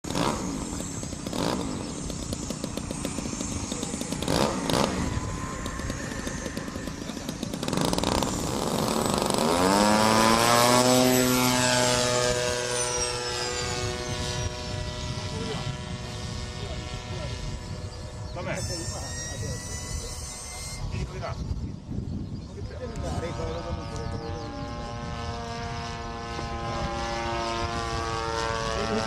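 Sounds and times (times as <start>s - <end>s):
model airplane engine buzzing: 0.0s - 29.0s
thin high whine: 0.1s - 21.4s
gusty wind noise: 0.1s - 29.0s.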